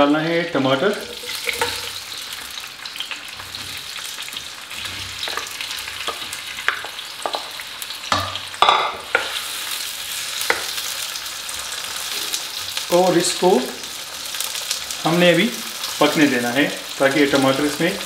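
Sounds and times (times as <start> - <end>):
tomatoes sizzling in ghee: 0.0 - 18.0
spatula knocking on pan: 8.1 - 9.4.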